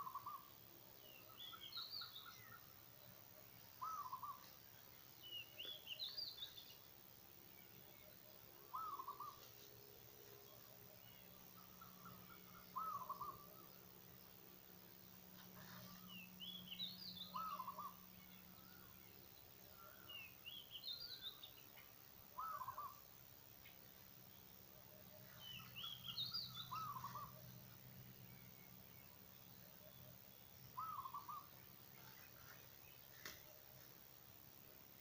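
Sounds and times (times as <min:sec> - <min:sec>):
bird wavering call: 0:00.0 - 0:00.5, 0:03.8 - 0:04.5, 0:08.7 - 0:09.5, 0:11.8 - 0:13.7, 0:17.2 - 0:18.0, 0:22.4 - 0:23.0, 0:25.4 - 0:27.4, 0:30.8 - 0:31.5
faint low hum: 0:00.0 - 0:35.0.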